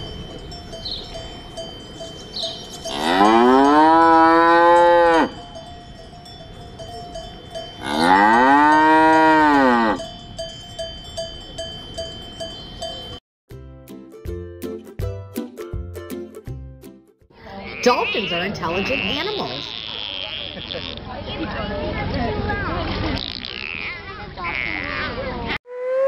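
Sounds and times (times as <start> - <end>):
cowbell tinkling: 0.0 - 13.2
cow mooing: 2.8 - 5.4, 7.8 - 10.1.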